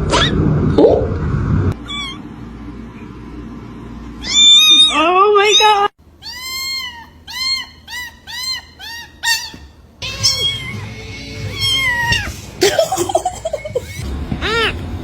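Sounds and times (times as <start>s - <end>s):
cat meowing: 1.8s - 2.2s, 4.2s - 12.4s.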